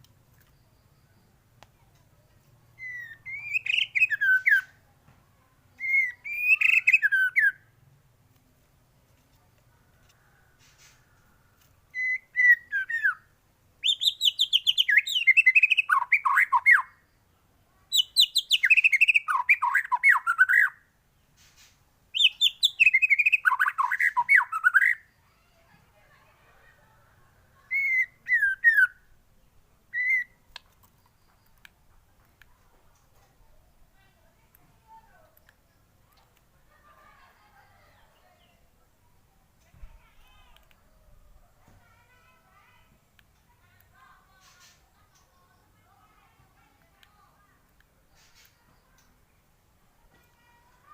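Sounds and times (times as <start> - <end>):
bird singing whistles and warbles: 2.7 - 4.8, 5.8 - 7.7, 11.9 - 17.0, 17.9 - 20.8, 22.1 - 25.1, 27.7 - 29.1, 29.9 - 30.4.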